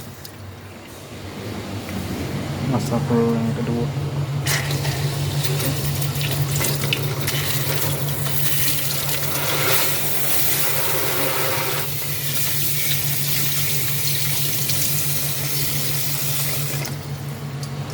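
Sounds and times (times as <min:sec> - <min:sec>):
tap water running into sink: 0:05.4 - 0:17.0.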